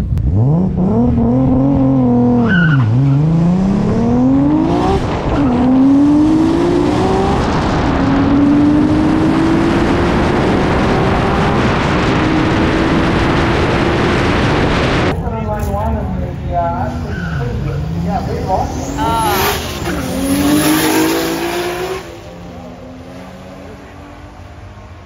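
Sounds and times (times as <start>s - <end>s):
drag car engine accelerating: 0.0s - 25.0s.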